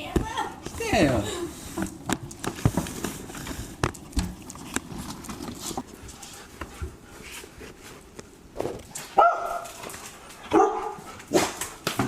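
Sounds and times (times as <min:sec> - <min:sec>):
dog claws clicking and tapping: 0:01.8 - 0:06.3.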